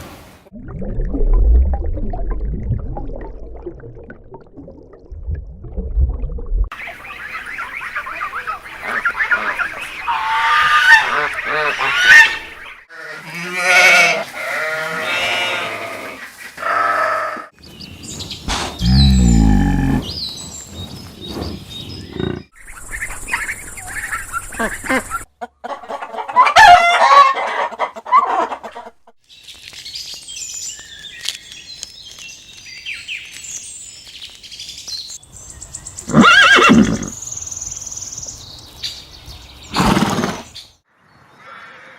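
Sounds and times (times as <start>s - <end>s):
high bird chirps: 6.7s - 12.9s
farm animal calls: 6.8s - 17.5s.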